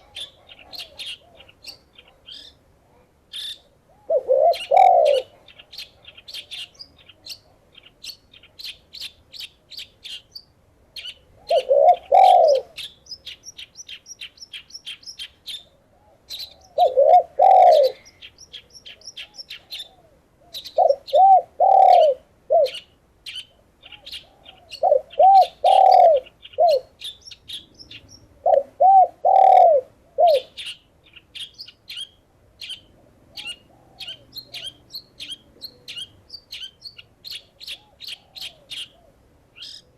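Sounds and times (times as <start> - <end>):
doves cooing: 0.0 - 2.5, 3.6 - 6.9, 11.4 - 12.9, 15.9 - 18.2, 18.9 - 22.8, 23.8 - 30.7, 32.9 - 36.1, 37.3 - 39.3
small birds chirping: 0.0 - 39.9.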